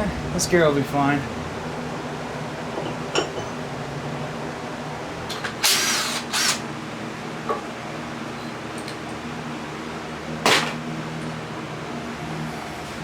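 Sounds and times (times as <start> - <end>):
power tool bursts: 5.6 - 6.7.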